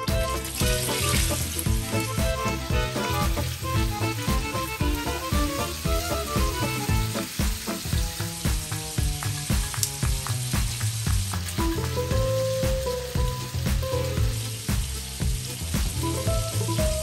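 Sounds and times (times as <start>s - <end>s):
background music with a beat: 0.0s - 17.0s
shrimp sizzling in a pan: 0.0s - 17.0s.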